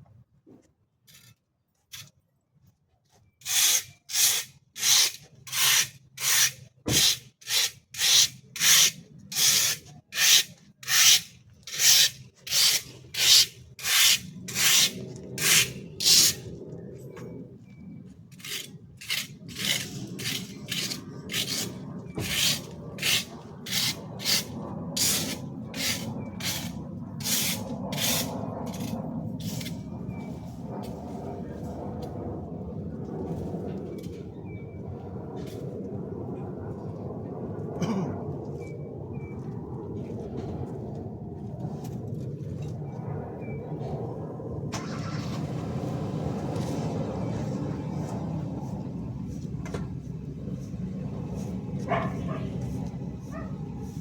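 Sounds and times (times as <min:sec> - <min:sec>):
hand tool rasping strokes: 0:03.4 - 0:16.5, 0:18.3 - 0:29.8
low steady rumble: 0:10.6 - 0:54.0.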